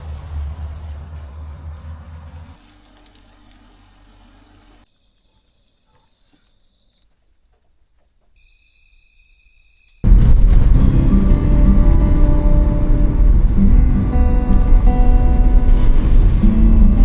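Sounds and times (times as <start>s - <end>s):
vehicle engine running: 0.0s - 4.8s, 10.1s - 17.0s.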